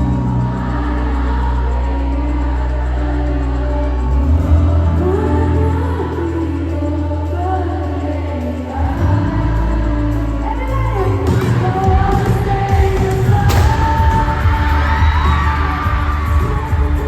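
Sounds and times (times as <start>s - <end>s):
heavy bass beat: 11.7s - 17.0s.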